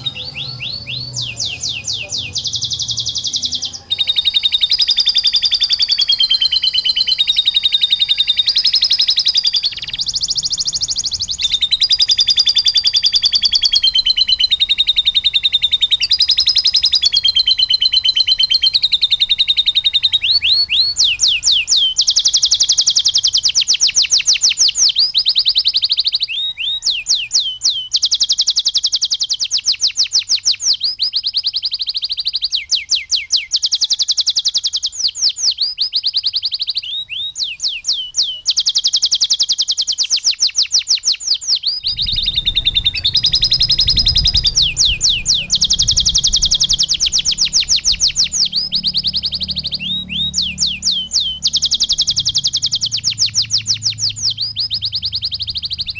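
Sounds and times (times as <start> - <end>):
canary singing trills: 0.0 - 55.9
low rumble: 41.8 - 50.1.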